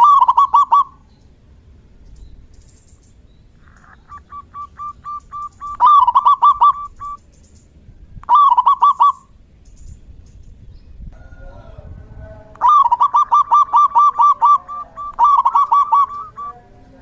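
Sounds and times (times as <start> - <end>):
dove cooing song: 0.0 - 1.2, 3.6 - 7.3, 8.2 - 9.4, 11.1 - 16.7.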